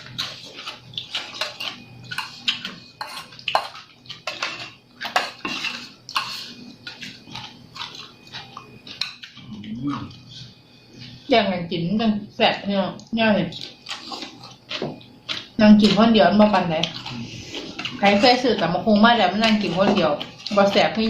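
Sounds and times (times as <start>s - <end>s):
utensils clinking on dishes: 0.0s - 9.4s
crunchy chewing: 0.0s - 10.2s, 13.5s - 18.7s.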